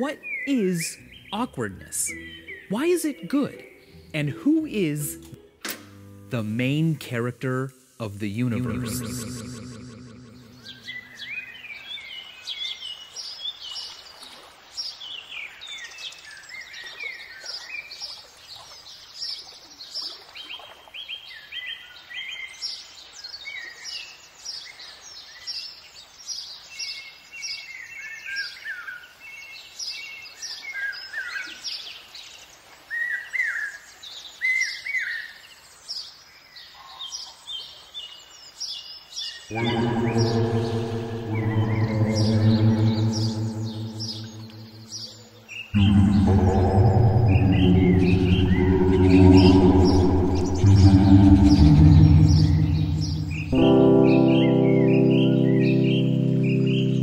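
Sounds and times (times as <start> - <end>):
songbirds chirping and singing: 0.0 - 5.4, 39.4 - 57.0.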